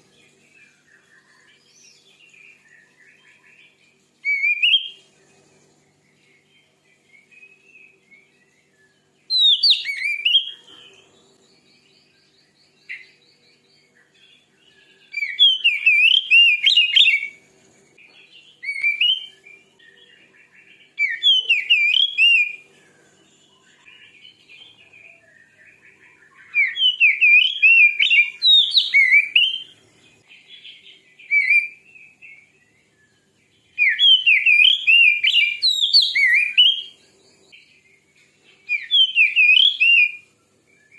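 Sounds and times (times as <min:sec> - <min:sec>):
bird singing rapid whistled notes: 0:00.0 - 0:05.1, 0:05.8 - 0:22.6, 0:23.3 - 0:40.9.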